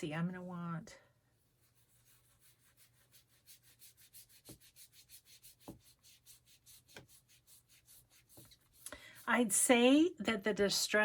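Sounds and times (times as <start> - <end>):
foam pad scrubbing on paper: 1.6 - 8.8.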